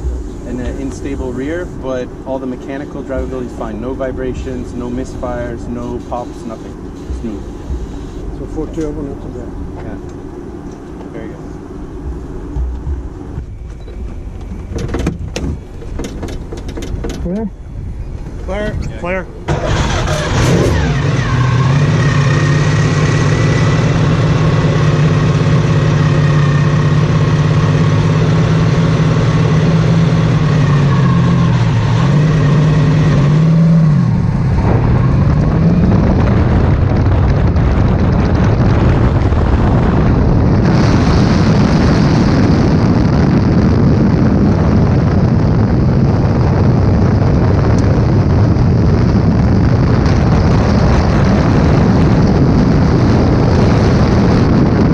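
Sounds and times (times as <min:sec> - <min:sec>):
race car engine idling: 0:00.0 - 0:20.4
wind noise on microphone: 0:00.0 - 0:54.9.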